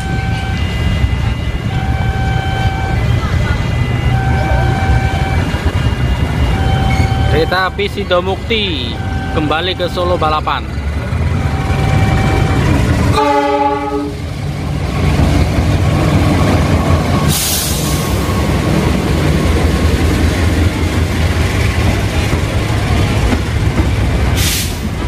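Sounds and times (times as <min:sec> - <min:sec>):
locomotive engine rumble: 0:00.0 - 0:25.0
train wheel noise: 0:00.0 - 0:25.0
train horn: 0:11.4 - 0:14.2.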